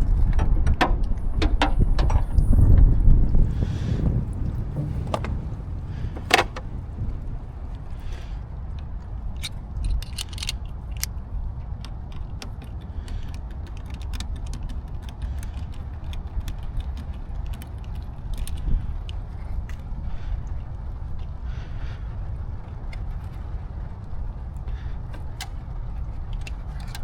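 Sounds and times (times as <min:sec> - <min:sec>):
steady low rumble: 0:00.0 - 0:27.0
metallic clicks of hand tools: 0:09.4 - 0:11.1.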